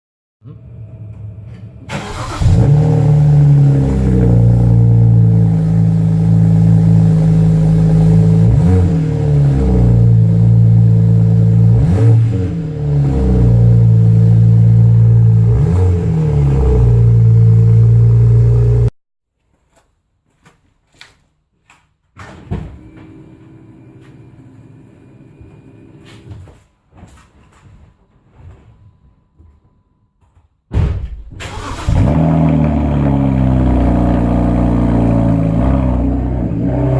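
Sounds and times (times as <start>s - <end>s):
car engine revving loudly: 1.9s - 18.9s, 31.6s - 36.9s.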